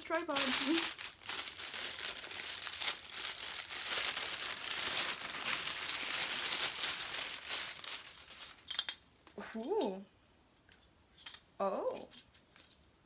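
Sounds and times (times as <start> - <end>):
packaging crinkling and rustling: 0.0 - 9.0.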